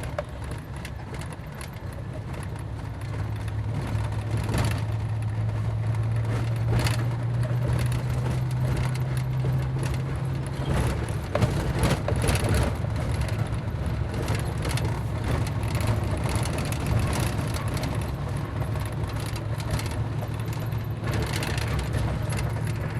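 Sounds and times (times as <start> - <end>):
knocks and rattles: 0.0 - 22.9
vehicle engine drone: 0.0 - 22.9.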